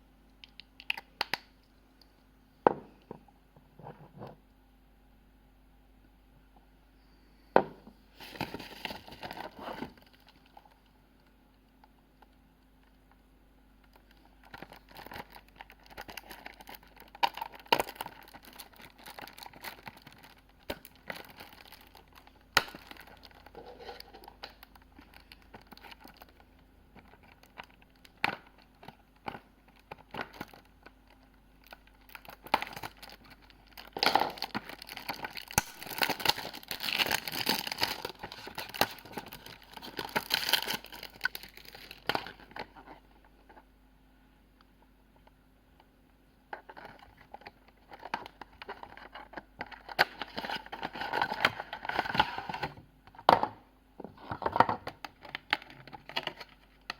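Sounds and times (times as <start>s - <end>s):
packaging crinkling and tearing: 8.2s - 10.8s, 13.8s - 43.7s, 46.5s - 52.8s, 54.2s - 56.9s.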